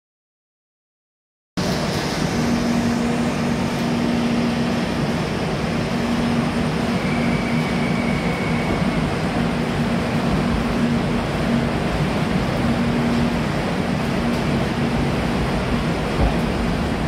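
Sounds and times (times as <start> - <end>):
passenger train rumbling: 1.6 - 17.0
faint high whine: 5.8 - 9.5.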